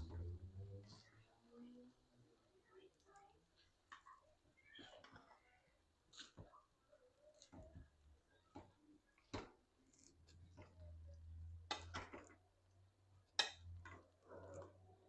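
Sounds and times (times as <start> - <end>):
pots and utensils clicking: 13.4 - 14.7.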